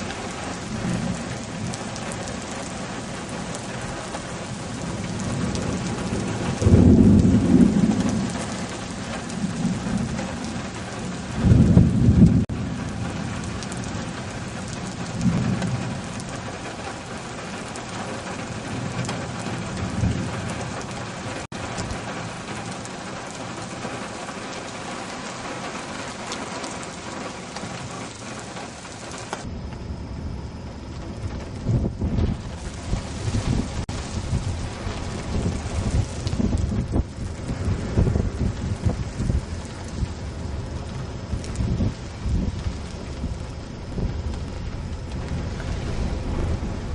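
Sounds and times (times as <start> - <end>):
heavy rain: 0.0 - 46.9
deep low rumbles: 29.4 - 46.9.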